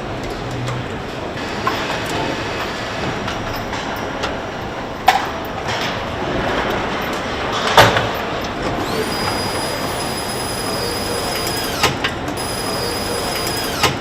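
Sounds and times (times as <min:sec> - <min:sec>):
industrial machinery din: 0:01.2 - 0:14.0
high steady tone: 0:08.8 - 0:11.8, 0:12.4 - 0:13.8.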